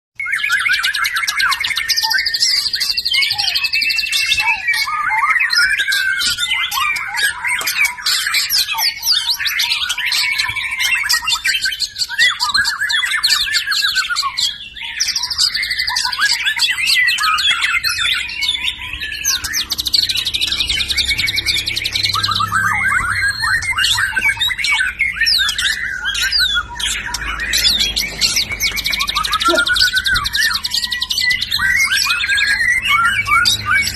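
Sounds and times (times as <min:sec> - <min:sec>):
bird singing whistled phrases: 0:00.2 - 0:33.9.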